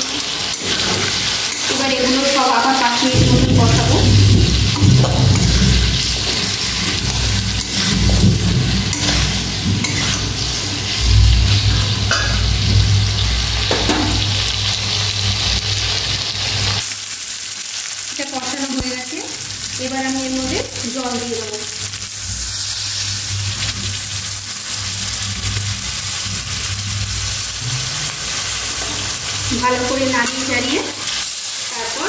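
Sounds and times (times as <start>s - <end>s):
metal spatula scraping a pan: 0.0s - 14.2s, 27.6s - 31.2s
food sizzling in a pan: 0.0s - 32.0s
low rumble: 2.7s - 15.8s.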